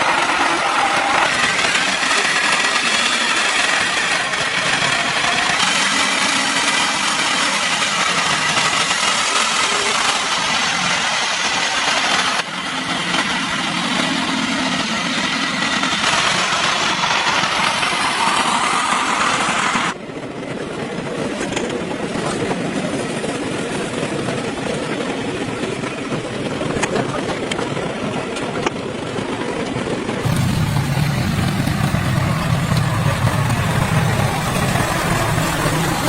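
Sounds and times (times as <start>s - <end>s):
vehicle engine running: 30.2s - 36.0s.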